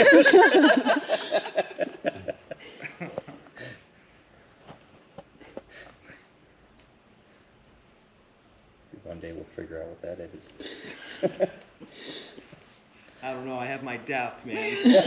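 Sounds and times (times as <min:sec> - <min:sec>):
people laughing: 0:00.0 - 0:03.6, 0:10.6 - 0:12.4, 0:14.6 - 0:15.0.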